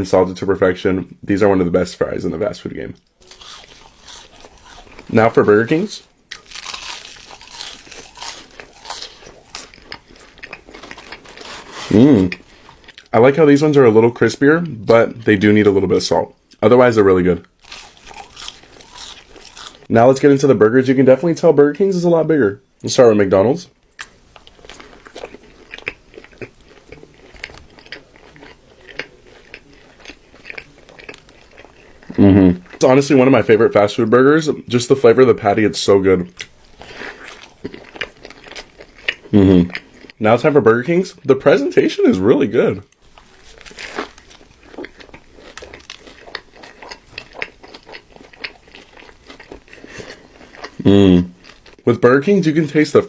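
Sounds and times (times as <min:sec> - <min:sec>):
person chewing burger: 0:03.2 - 0:13.1, 0:17.5 - 0:19.9, 0:24.0 - 0:32.8, 0:36.4 - 0:40.2, 0:42.9 - 0:51.8.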